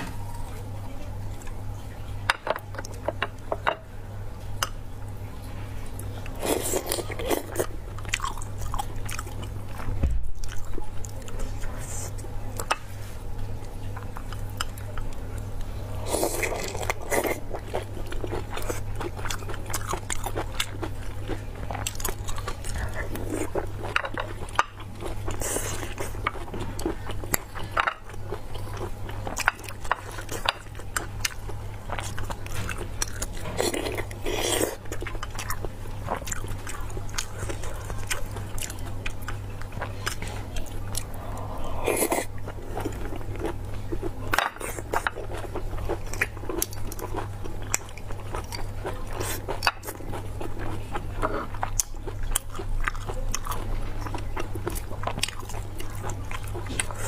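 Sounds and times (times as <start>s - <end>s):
low steady hum: 0.0s - 57.0s
wet chewing and biting: 16.4s - 57.0s.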